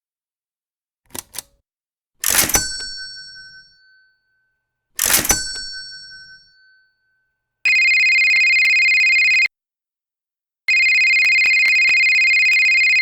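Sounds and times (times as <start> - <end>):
telephone ringing: 2.2 - 3.7, 5.0 - 6.8, 7.7 - 9.5, 10.7 - 13.0.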